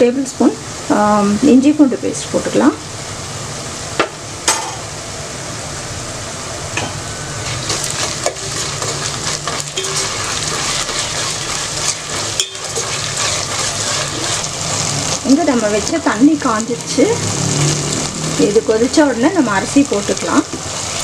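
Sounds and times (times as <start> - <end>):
onions sizzling in hot oil: 0.0 - 21.0
spoon stirring and knocking pan: 6.8 - 14.8.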